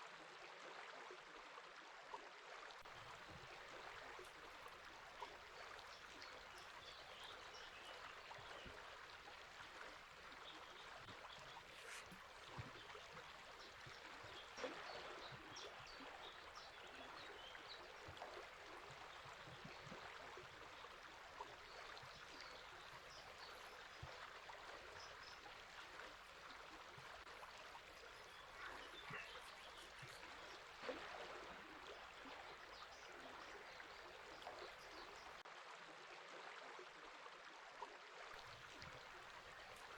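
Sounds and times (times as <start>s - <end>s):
river flowing: 2.8s - 35.4s, 38.4s - 39.9s
faint bird chirps: 5.1s - 35.4s.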